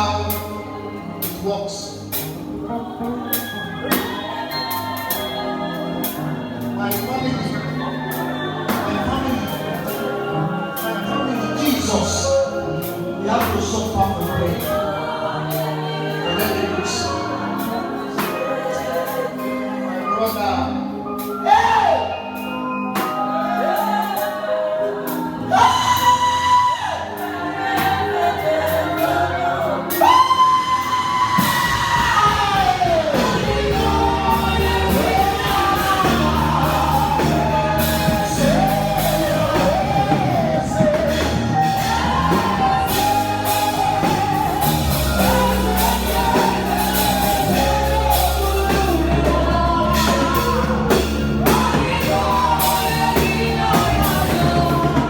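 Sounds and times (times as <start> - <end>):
live gospel band: 0.0 - 55.0
bass and drum groove: 29.9 - 55.0.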